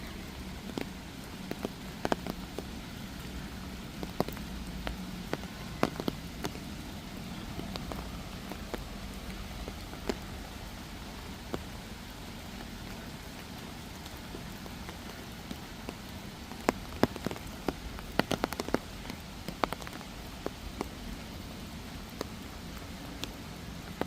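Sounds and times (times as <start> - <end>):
raindrops ticking nearby: 0.0 - 24.0
steady rain: 0.0 - 24.0.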